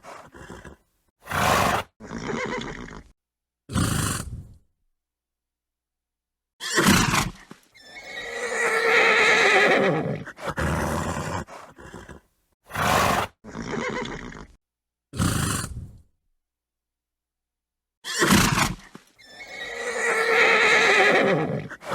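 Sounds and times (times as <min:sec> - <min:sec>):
horse snorting and blowing: 0:00.0 - 0:03.1, 0:03.7 - 0:04.6, 0:06.6 - 0:16.1, 0:18.0 - 0:21.9
horse neighing: 0:00.3 - 0:03.1, 0:06.6 - 0:12.2, 0:12.8 - 0:14.6, 0:18.0 - 0:21.9.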